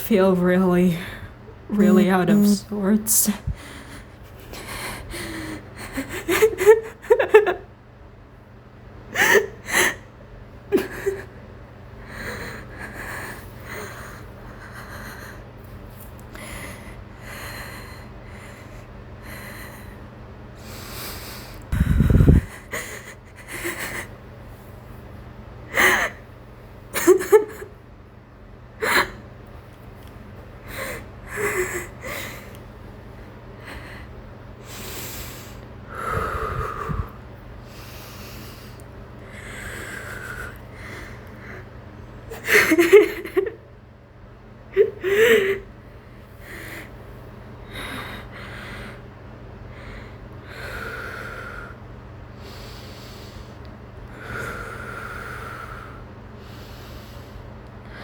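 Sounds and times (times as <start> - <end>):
steady low hum: 0.0 - 58.0
shaky breathing: 20.6 - 24.0, 34.7 - 41.2.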